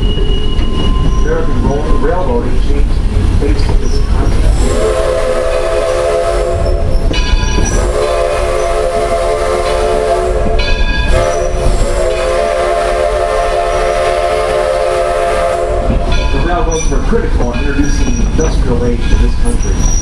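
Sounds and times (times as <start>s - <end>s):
low rumble of train rolling: 0.0s - 20.0s
steam locomotive whistle: 4.6s - 16.2s.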